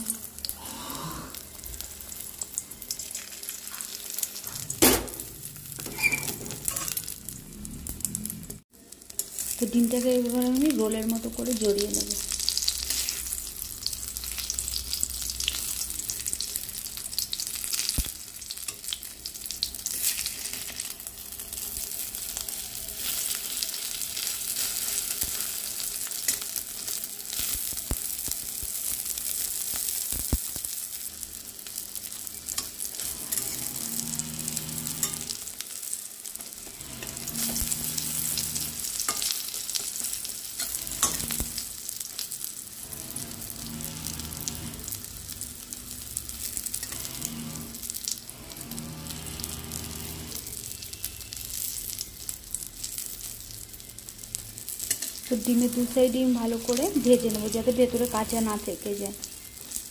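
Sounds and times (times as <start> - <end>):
omelette sizzling in oil: 0.0 - 59.9
metal spatula scraping pan: 5.8 - 7.2, 32.5 - 35.4, 36.6 - 41.6.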